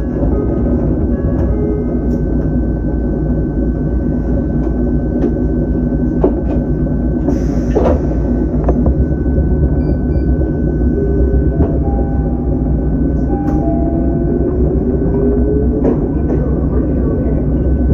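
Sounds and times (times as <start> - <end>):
electric train equipment hum: 0.0 - 17.9.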